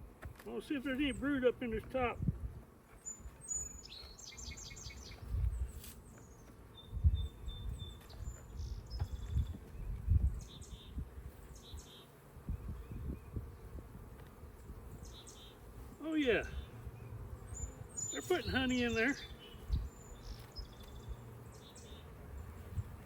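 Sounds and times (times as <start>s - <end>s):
honeybee colony humming: 0.0s - 23.0s
small birds chirping: 0.0s - 23.0s
soft bumps on microphone: 8.0s - 10.3s.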